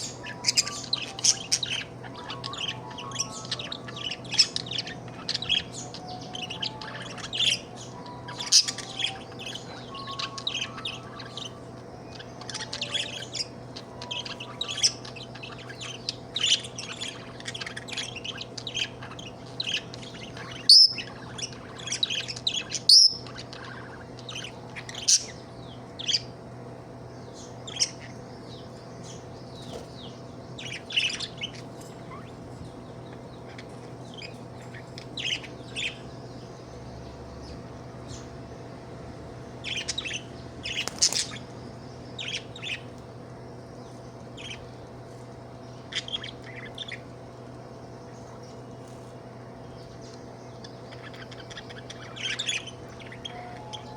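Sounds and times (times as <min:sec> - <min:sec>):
sharp bird calls: 0:00.0 - 0:26.4, 0:39.5 - 0:44.8, 0:45.5 - 0:53.9
steady low hum: 0:00.0 - 0:53.9.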